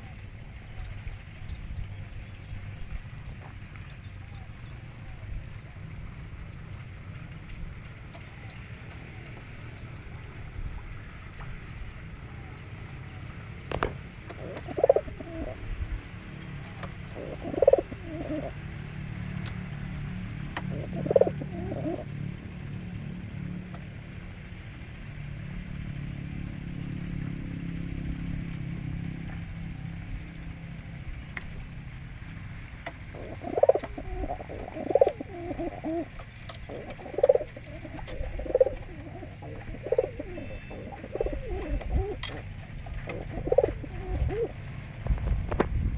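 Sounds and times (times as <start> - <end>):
low steady rumble: 0.0 - 45.9
pigeon cooing: 12.3 - 15.8, 16.7 - 18.6, 20.6 - 22.1, 33.1 - 44.6.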